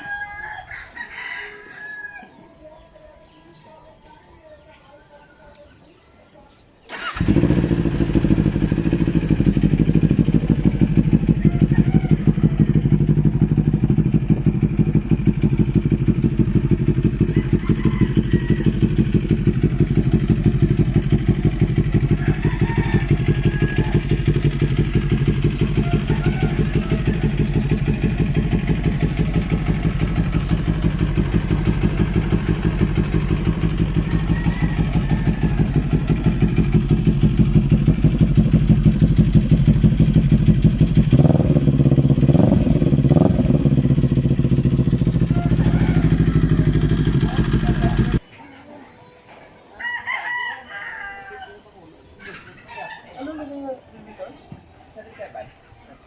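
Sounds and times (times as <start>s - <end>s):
motorcycle engine idling: 6.9s - 48.2s.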